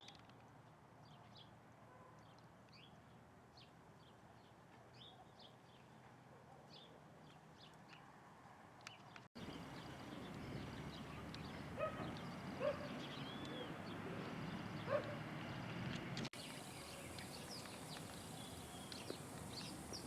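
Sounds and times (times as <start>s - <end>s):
birds chirping faintly: 8.9s - 20.0s.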